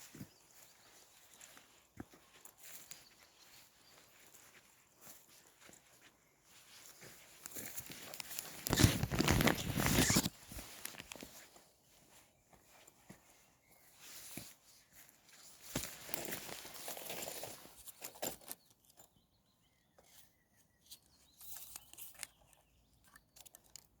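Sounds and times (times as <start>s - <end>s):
footsteps crunching: 0.0s - 17.7s.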